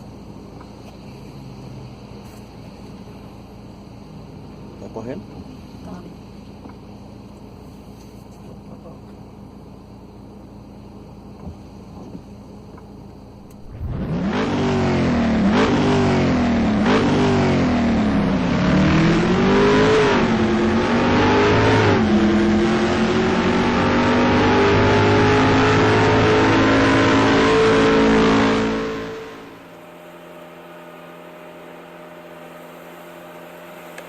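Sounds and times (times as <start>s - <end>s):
car engine accelerating: 13.2s - 34.0s.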